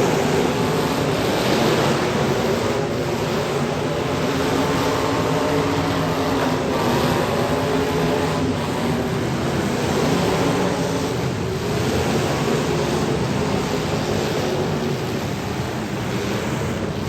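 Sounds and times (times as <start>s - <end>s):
car engines running: 0.0s - 17.0s.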